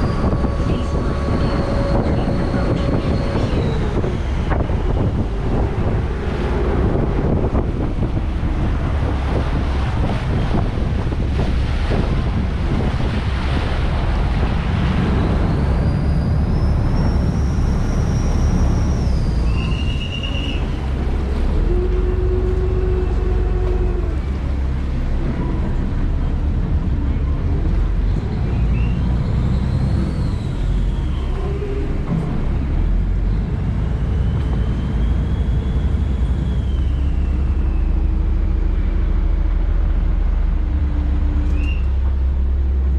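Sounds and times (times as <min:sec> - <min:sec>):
boat engine rumbling: 0:00.0 - 0:42.9
water noise: 0:00.0 - 0:42.9
wind noise: 0:00.0 - 0:42.9.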